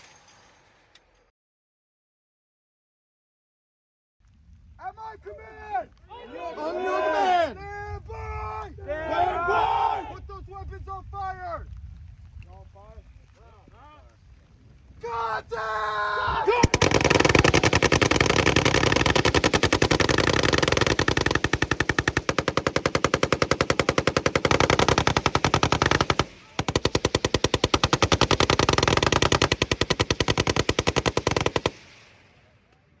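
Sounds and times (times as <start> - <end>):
machine gun automatic bursts: 16.6 - 32.2.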